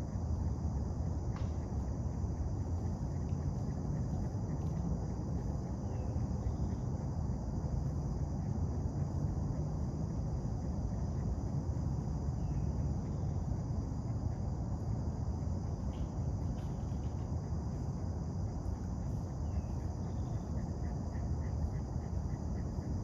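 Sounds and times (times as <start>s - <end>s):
high insect hum: 0.0s - 23.0s.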